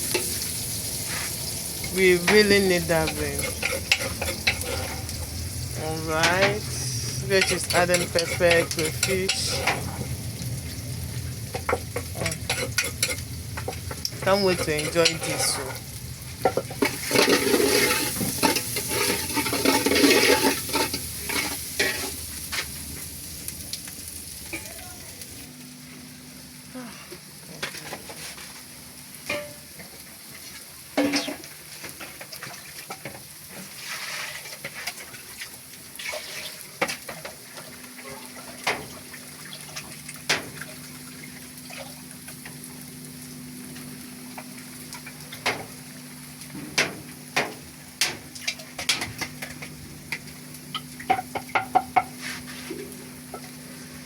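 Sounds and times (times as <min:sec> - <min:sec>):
spaghetti sizzling in oil: 0:00.0 - 0:54.0
low steady hum: 0:01.5 - 0:22.2
spoon scraping and knocking pot: 0:03.1 - 0:05.1, 0:16.5 - 0:22.1.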